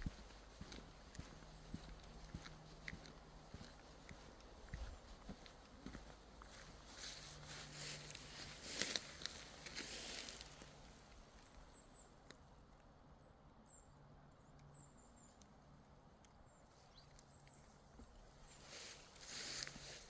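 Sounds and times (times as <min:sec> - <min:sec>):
footsteps crunching on forest floor: 0:00.0 - 0:11.2, 0:18.0 - 0:20.0.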